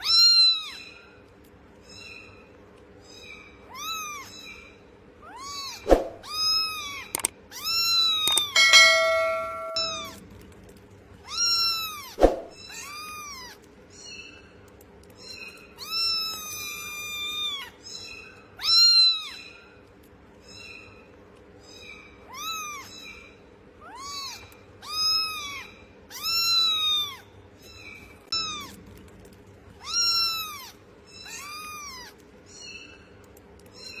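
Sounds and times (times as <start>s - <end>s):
steady ringing tone: 8.3s - 10.2s.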